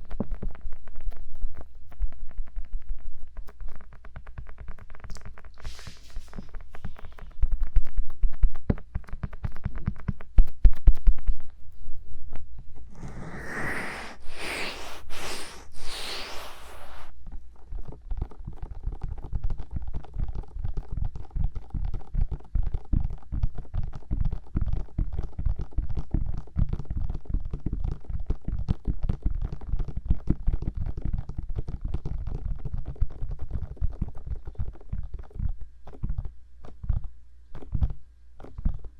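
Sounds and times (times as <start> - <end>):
hissing rubbing on microphone: 5.6 - 7.4, 12.9 - 17.1.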